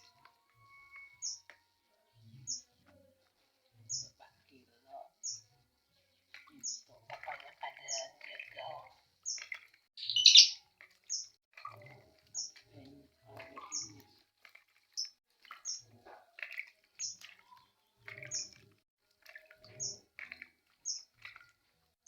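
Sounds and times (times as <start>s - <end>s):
pet bird chirping: 0.0s - 1.6s, 2.2s - 3.1s, 3.8s - 4.3s, 4.9s - 5.5s, 6.3s - 11.4s, 12.3s - 12.9s, 13.5s - 14.1s, 17.0s - 18.6s, 20.8s - 21.2s
soft bird calls: 0.0s - 21.6s.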